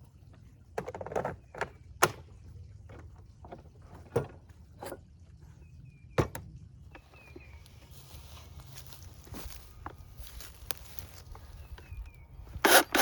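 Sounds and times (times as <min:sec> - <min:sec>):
knocks and clunks of tools: 0:00.7 - 0:02.3, 0:06.2 - 0:07.5.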